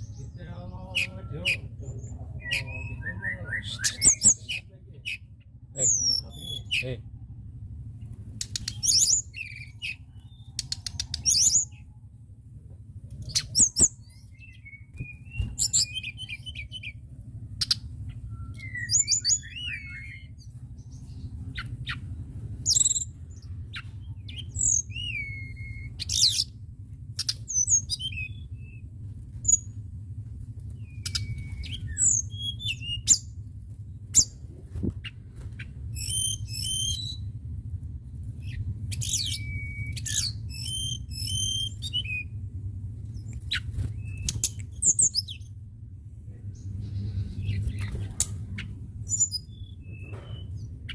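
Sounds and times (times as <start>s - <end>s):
songbird whistling and chipping: 0.0s - 6.9s, 8.4s - 11.8s, 13.2s - 17.0s, 17.6s - 22.0s, 22.6s - 26.5s, 27.2s - 28.8s, 30.8s - 33.3s, 34.1s - 34.4s, 35.9s - 37.3s, 38.4s - 42.3s, 43.2s - 45.5s, 47.4s - 50.9s
steady low hum: 0.0s - 50.9s.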